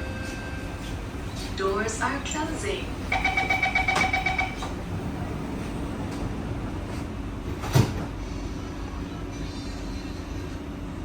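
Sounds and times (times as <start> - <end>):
train carriage low hum: 0.0 - 11.0
train door closing chime: 0.1 - 8.0
sliding doors shutting thud: 3.8 - 8.2.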